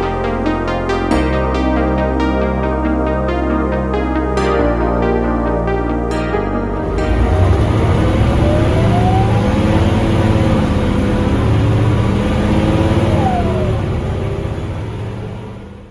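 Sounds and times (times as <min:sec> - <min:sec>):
diesel bus engine accelerating: 0:06.7 - 0:15.9
engine whine: 0:06.7 - 0:15.9.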